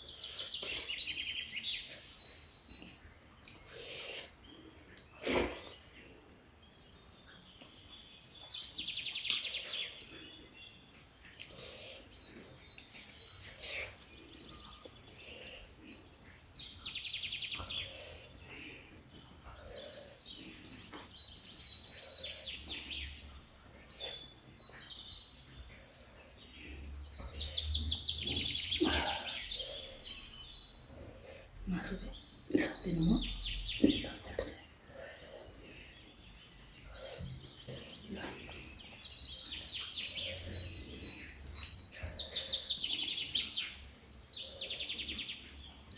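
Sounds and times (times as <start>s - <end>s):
eating sounds: 17.5s - 30.2s.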